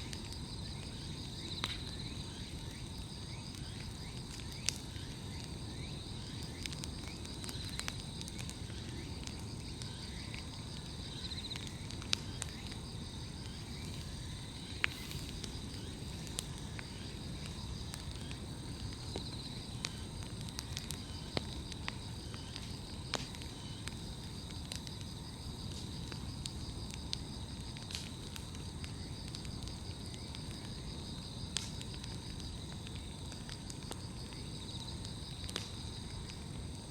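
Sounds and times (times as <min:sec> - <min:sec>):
bonfire crackling and popping: 0:00.0 - 0:36.9
trilling insects: 0:00.0 - 0:36.9.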